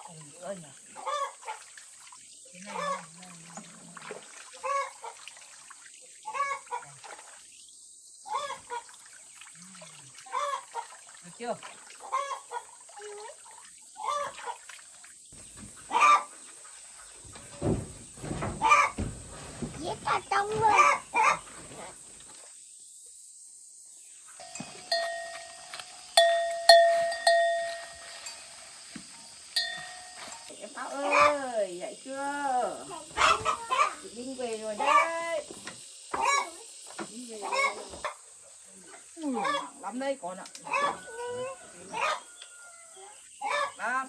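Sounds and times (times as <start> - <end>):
chicken clucking: 1.0 - 1.4, 2.8 - 3.0, 6.3 - 6.8, 8.3 - 8.7, 10.3 - 10.8, 12.0 - 12.7, 15.8 - 16.3, 18.5 - 19.1, 19.8 - 21.9, 33.2 - 34.0, 36.2 - 36.6, 37.4 - 38.2, 39.4 - 39.8, 40.6 - 43.8
metal bell ringing: 24.4 - 28.6, 29.6 - 30.5.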